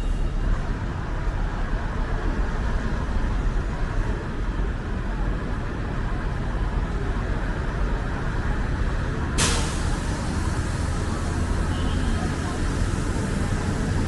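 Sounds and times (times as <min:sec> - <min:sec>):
street traffic rumble: 0:00.0 - 0:14.0
loud hiss: 0:09.4 - 0:11.5.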